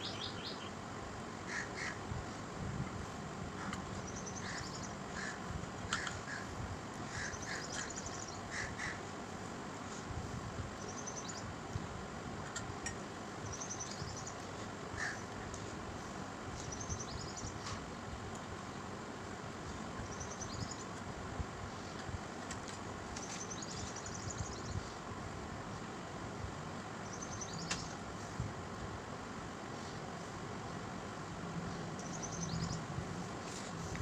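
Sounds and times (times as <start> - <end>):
birds chirping: 0.0 - 0.8, 3.6 - 6.5, 27.0 - 28.0, 31.7 - 32.9
lower bird calls: 3.6 - 9.1.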